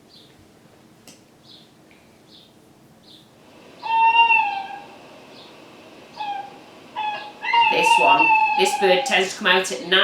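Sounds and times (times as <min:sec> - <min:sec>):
owl hoot: 0:03.8 - 0:09.3.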